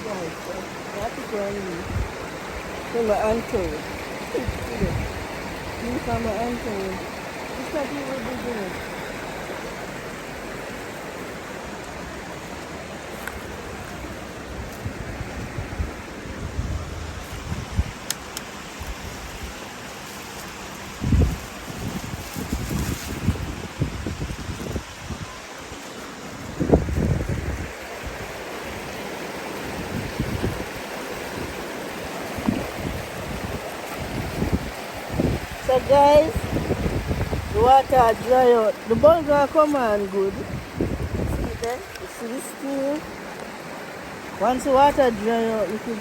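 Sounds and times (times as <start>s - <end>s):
river water rushing: 0.0s - 46.0s
wind buffeting microphone: 0.0s - 46.0s.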